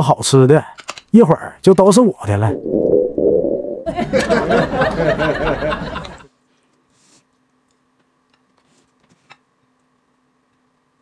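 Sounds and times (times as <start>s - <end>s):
faint steady hum: 1.5s - 8.4s.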